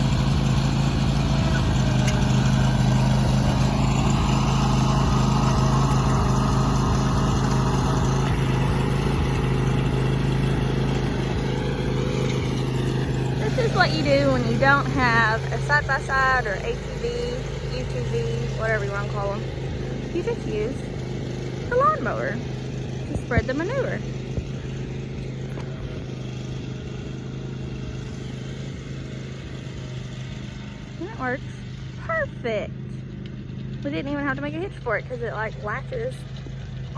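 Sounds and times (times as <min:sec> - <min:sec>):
lawn mower engine running: 0:00.0 - 0:36.9.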